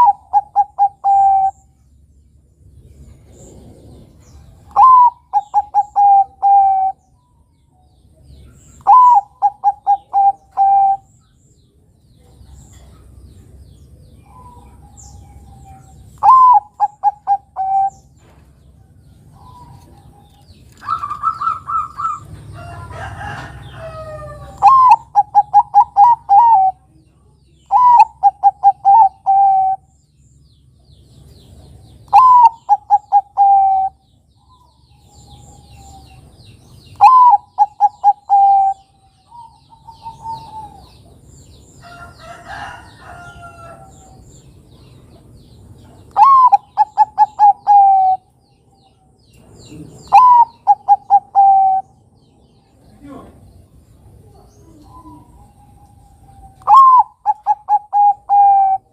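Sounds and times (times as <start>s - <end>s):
zebra dove cooing: 0.0s - 1.6s, 4.6s - 7.0s, 8.8s - 11.1s, 15.6s - 18.0s, 23.7s - 26.9s, 27.7s - 29.9s, 32.1s - 34.0s, 36.9s - 41.0s, 46.1s - 48.3s, 49.6s - 51.9s, 54.5s - 58.9s
faint bird calls: 0.0s - 1.9s, 3.1s - 7.5s, 14.1s - 30.0s, 32.0s - 41.1s, 45.8s - 58.9s.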